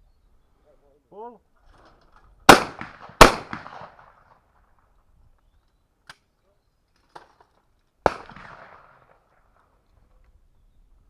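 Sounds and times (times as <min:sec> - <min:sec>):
shotgun shot echoing: 0:02.5 - 0:04.1, 0:08.1 - 0:08.9.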